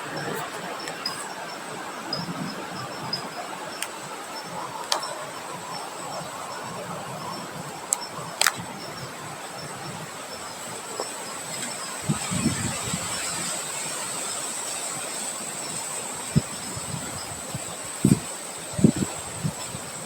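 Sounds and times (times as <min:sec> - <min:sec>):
wind blowing: 0:00.0 - 0:20.0
wind buffeting microphone: 0:00.0 - 0:20.0
sharp clicks: 0:07.9 - 0:08.6.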